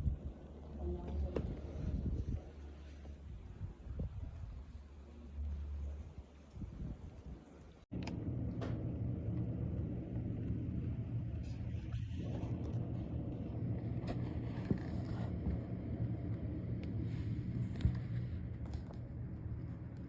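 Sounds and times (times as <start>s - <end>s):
engine humming steadily: 7.6s - 20.0s.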